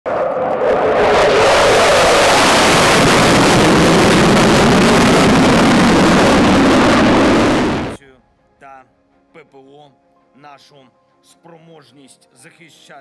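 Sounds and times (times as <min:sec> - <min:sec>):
jet engine passing overhead: 0:00.1 - 0:08.0.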